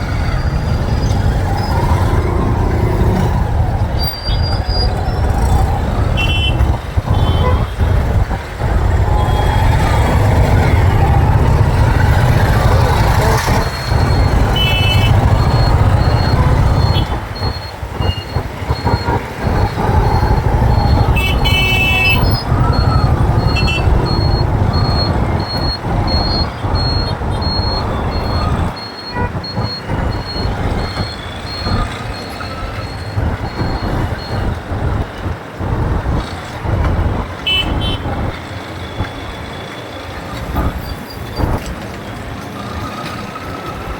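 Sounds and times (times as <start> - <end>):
motorcycle engine rumble: 0.0 - 39.5
vehicle horns honking: 6.2 - 8.0, 14.4 - 17.2, 21.1 - 22.4, 37.4 - 38.2
high beep: 20.7 - 34.5.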